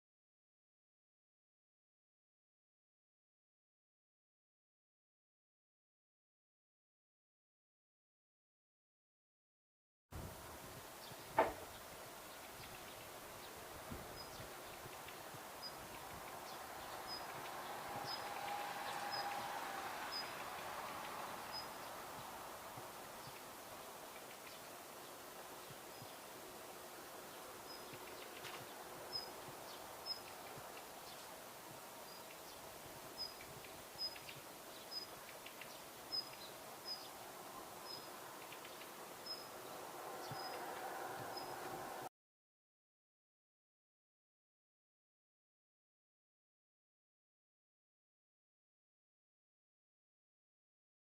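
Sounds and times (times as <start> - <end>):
faint bird ticking notes: 11.0 - 19.5, 20.1 - 41.6
faint ticks: 14.2 - 17.6, 24.1 - 24.7, 27.7 - 29.3, 33.2 - 37.0, 37.9 - 39.5.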